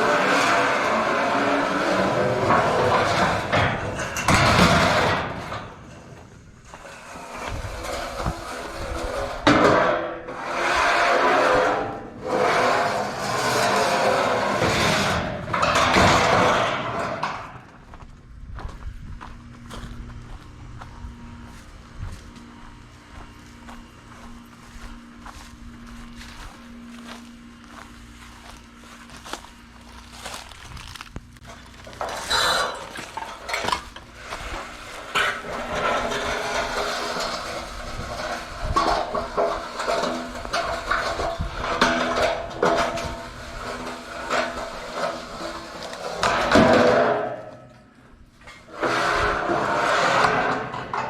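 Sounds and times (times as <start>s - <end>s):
scrap metal clanking: 0.0s - 17.7s, 31.4s - 51.0s
steady low hum: 0.0s - 51.0s.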